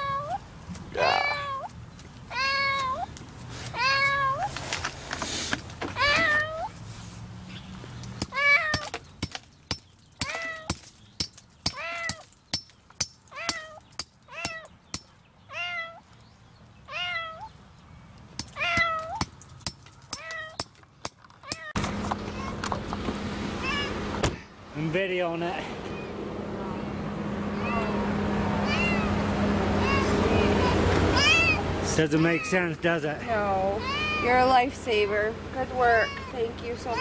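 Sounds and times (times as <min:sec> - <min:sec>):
kitten meowing: 0:00.0 - 0:00.4, 0:01.0 - 0:01.7, 0:02.3 - 0:03.1, 0:03.8 - 0:04.5, 0:08.3 - 0:08.9, 0:13.3 - 0:14.7, 0:15.5 - 0:16.0, 0:16.9 - 0:17.5, 0:18.6 - 0:19.2, 0:23.6 - 0:24.5, 0:27.5 - 0:28.0, 0:28.6 - 0:29.2, 0:29.8 - 0:31.6, 0:32.2 - 0:32.6, 0:33.7 - 0:34.5, 0:35.8 - 0:37.0
hammering on concrete: 0:08.2 - 0:15.1.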